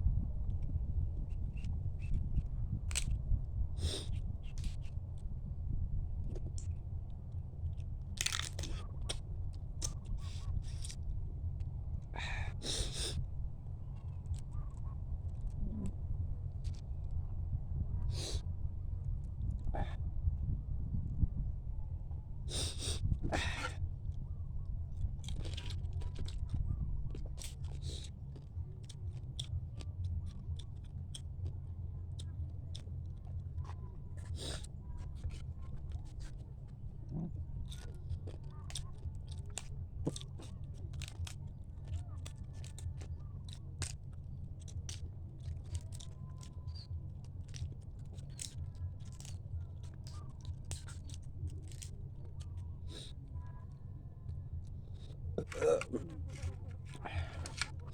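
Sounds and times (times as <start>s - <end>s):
low hum: 0.0s - 57.9s
person chewing crunchy food: 8.2s - 9.1s, 47.4s - 53.2s, 54.9s - 57.9s.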